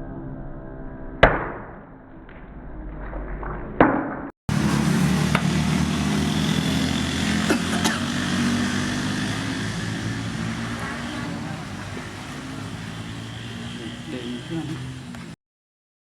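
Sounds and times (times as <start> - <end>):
steady motor hum: 4.5 - 15.4.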